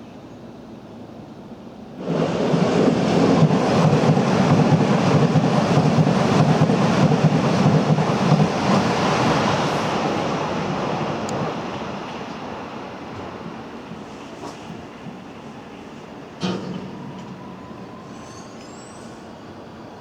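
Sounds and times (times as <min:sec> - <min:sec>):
train passing at speed: 0:00.0 - 0:20.0.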